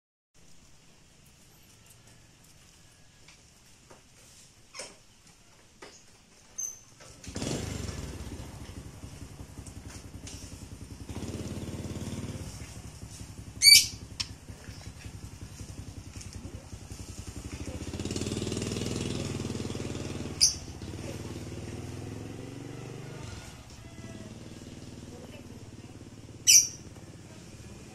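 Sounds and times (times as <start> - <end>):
small engine running: 6.6 - 27.9
sharp high-pitched squeaks: 13.6 - 14.4, 20.2 - 20.8, 26.4 - 26.9.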